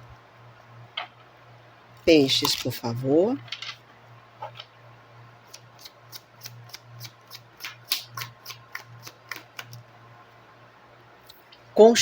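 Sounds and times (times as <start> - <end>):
cards being shuffled: 5.5 - 9.8.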